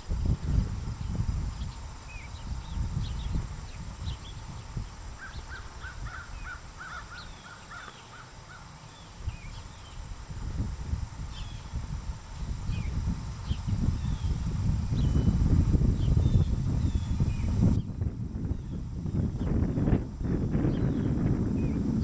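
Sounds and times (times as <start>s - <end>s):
birds chirping: 1.0s - 10.1s.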